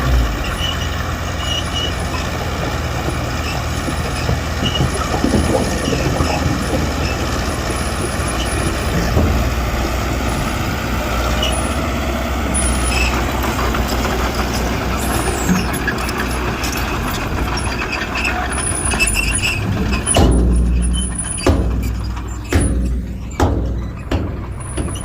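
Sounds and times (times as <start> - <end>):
engine surge and clunk: 0.0 - 25.0
heavy machinery diesel engine: 0.0 - 25.0.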